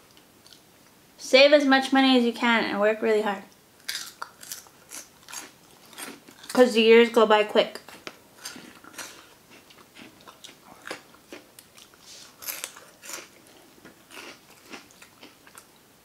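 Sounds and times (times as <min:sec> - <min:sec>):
crunchy snack being chewed: 0:03.8 - 0:06.6, 0:07.8 - 0:15.8.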